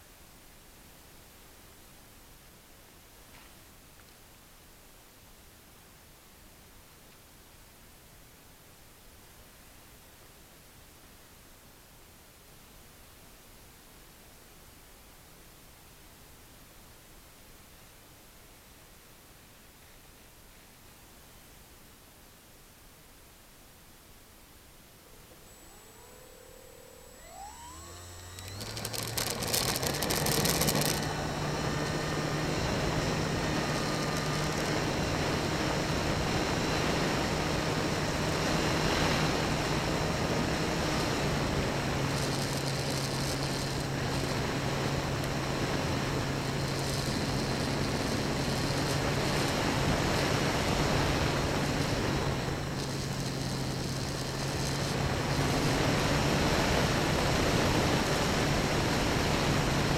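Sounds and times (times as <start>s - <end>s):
model plane motor humming: 25.0s - 59.9s.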